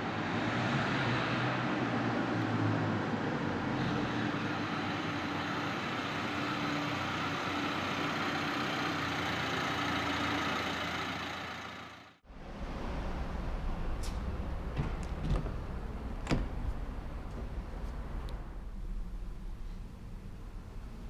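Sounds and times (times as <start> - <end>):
diesel engine idling: 3.6 - 12.3.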